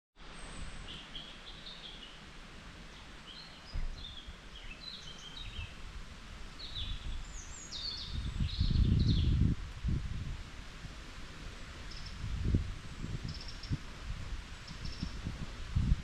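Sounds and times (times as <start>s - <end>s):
songbirds chirping: 0.2s - 9.5s.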